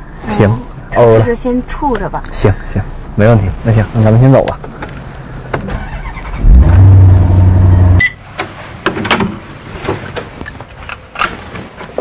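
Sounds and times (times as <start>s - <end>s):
car engine starting and idling: 0.0s - 8.7s.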